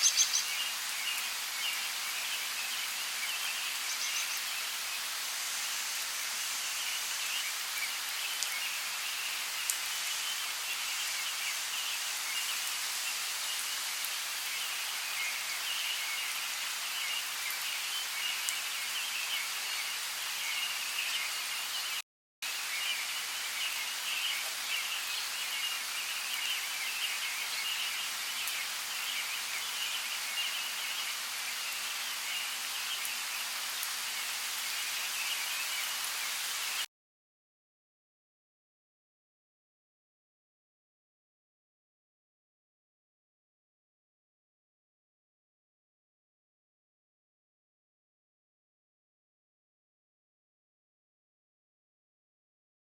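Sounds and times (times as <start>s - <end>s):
steady rain falling: 0.0s - 36.9s.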